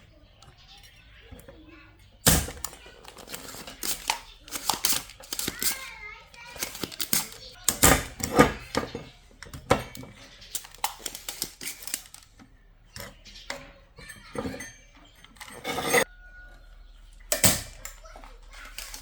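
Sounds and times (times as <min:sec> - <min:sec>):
metal tools clinking and scraping: 0:02.4 - 0:19.0.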